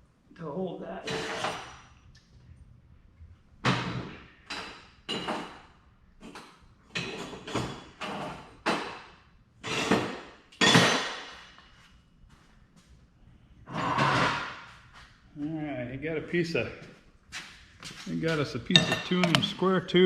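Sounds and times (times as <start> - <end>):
scrap steel clanking: 18.7 - 19.7.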